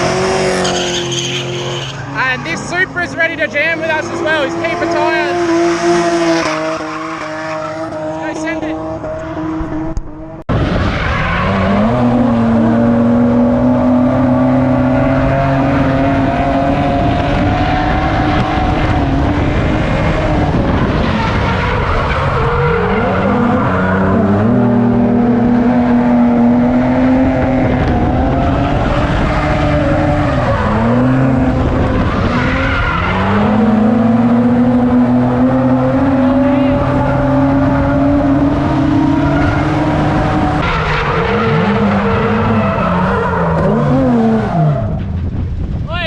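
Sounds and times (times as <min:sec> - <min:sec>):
car engine at high revs: 0:00.0 - 0:45.8
tyres skidding: 0:00.0 - 0:45.9.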